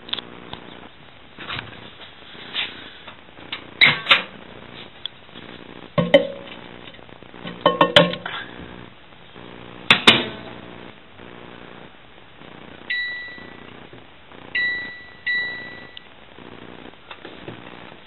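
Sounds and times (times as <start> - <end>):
electronic keypad beeps: 12.9 - 13.6, 14.6 - 16.0.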